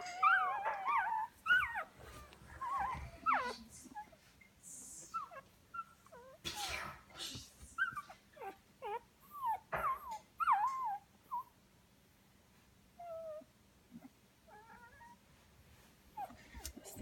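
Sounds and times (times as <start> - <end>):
puppies whimpering and squeaking: 0.0 - 4.3, 5.0 - 6.4, 7.8 - 11.6, 13.0 - 15.2.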